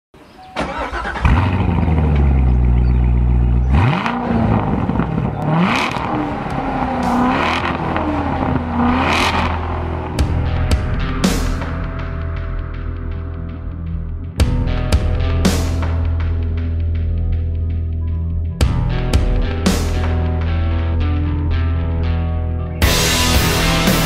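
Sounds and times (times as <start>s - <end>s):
car engine idling and revving: 0.2s - 24.0s.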